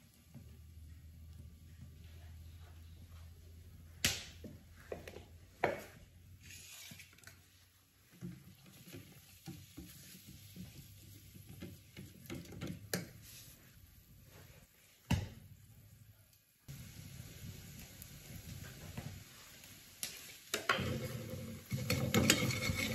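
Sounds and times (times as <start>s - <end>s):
metal clacks against pot: 20.6s - 22.9s
utensils clinking and scraping: 20.6s - 22.9s.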